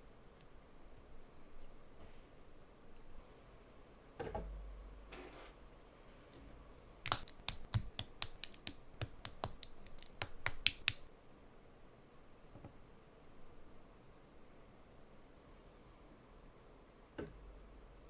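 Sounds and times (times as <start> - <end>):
plastic bricks clicking: 7.1 - 11.0.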